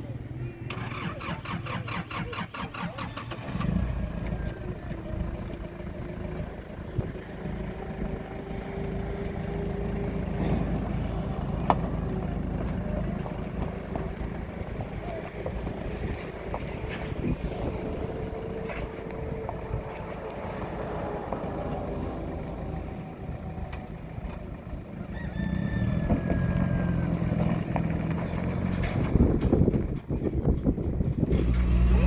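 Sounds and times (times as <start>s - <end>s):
outdoor background noise: 0.0s - 32.0s
vehicle engine running: 0.0s - 32.0s.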